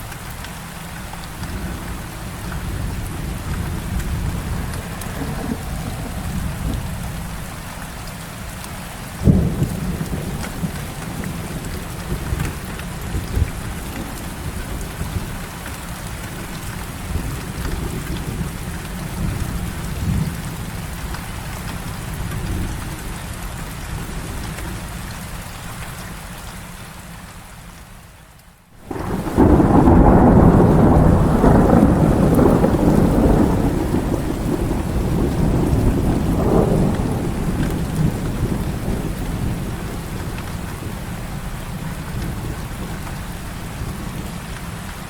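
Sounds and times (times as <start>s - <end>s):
heavy rain falling: 0.0s - 45.0s
thunder rumbling: 1.2s - 8.5s, 9.1s - 21.0s, 28.8s - 44.5s
sharp loud thunderclap: 2.8s - 7.6s, 28.9s - 41.0s.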